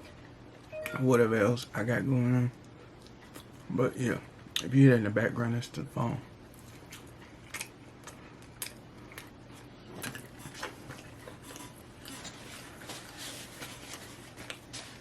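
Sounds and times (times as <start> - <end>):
low steady hum: 0.0 - 15.0
food packaging rustling: 9.6 - 15.0.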